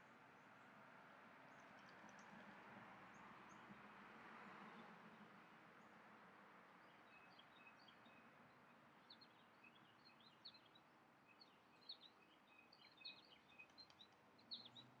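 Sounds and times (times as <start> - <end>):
small birds chirping: 9.1 - 15.0.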